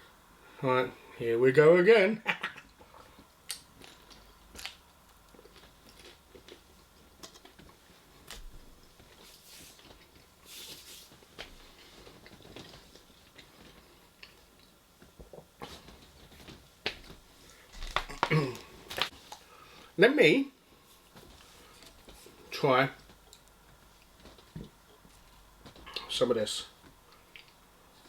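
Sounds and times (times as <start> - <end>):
person chewing food: 2.4 - 10.5, 11.6 - 19.5, 27.0 - 27.6.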